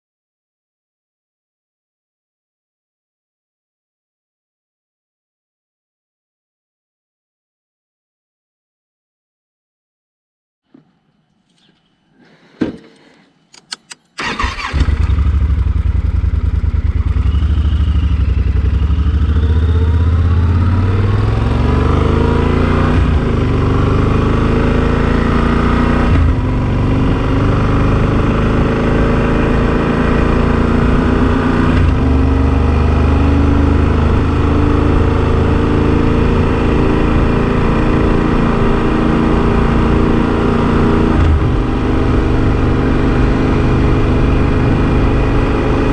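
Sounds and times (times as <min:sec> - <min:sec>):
sharp clicks: 0:13.0 - 0:14.7
motorcycle engine running: 0:14.2 - 0:38.8.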